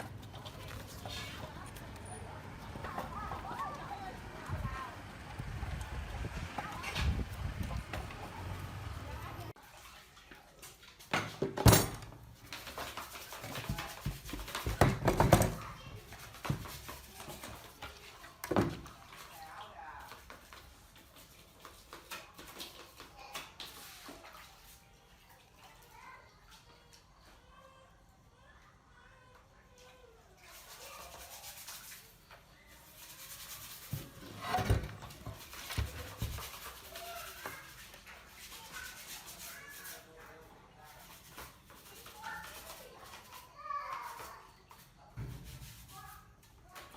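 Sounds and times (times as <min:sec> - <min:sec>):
scrubbing a metal part: 0:30.5 - 0:46.6.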